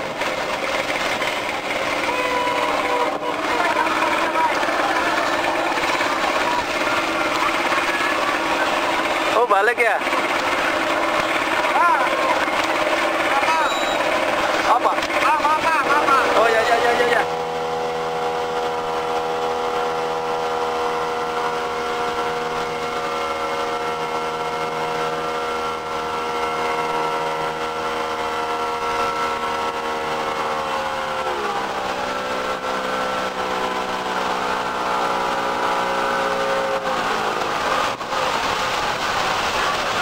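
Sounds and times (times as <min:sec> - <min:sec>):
motorboat engine running: 0:00.0 - 0:40.0
hiss of water and wind: 0:31.4 - 0:40.0.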